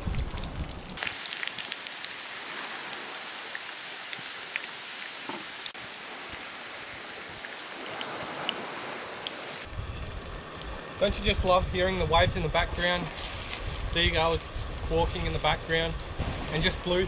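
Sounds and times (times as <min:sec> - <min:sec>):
squid rings sizzling in oil: 0:01.0 - 0:05.8.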